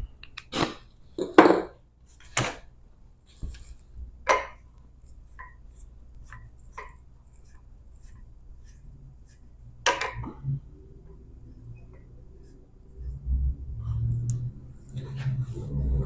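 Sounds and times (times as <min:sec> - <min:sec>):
tools knocking on a workbench: 0:01.2 - 0:01.8
low hum: 0:09.8 - 0:16.0.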